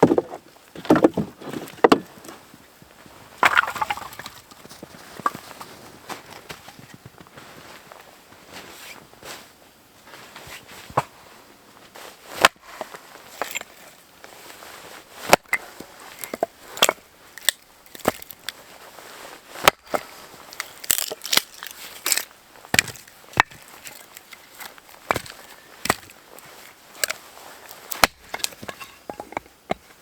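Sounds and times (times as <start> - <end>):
firewood cracking and knocking: 0.0 - 2.1, 3.4 - 5.7, 16.2 - 18.6, 19.6 - 30.0.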